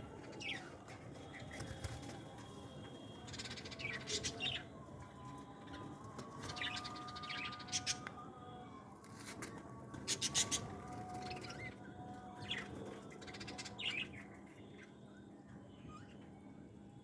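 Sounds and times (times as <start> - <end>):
small birds chirping: 10.1 - 16.2.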